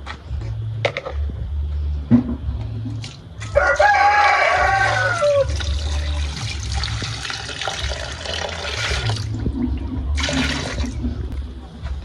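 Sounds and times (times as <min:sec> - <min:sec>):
water pouring and splashing: 0:05.4 - 0:11.2.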